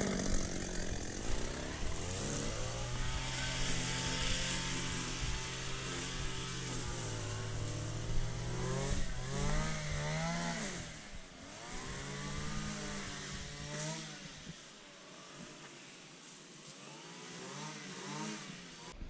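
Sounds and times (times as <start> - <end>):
lawnmower engine revving: 0.0 - 14.7, 16.9 - 19.0.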